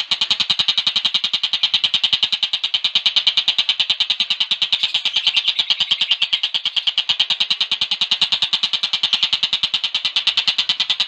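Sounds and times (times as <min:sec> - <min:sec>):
songbird trilling: 0:04.4 - 0:09.4.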